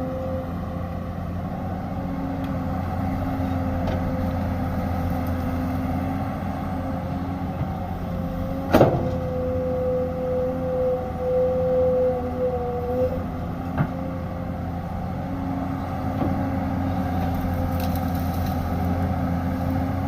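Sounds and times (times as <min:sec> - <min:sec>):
engine whine: 0:00.0 - 0:20.0
excavator diesel engine running: 0:00.0 - 0:20.0.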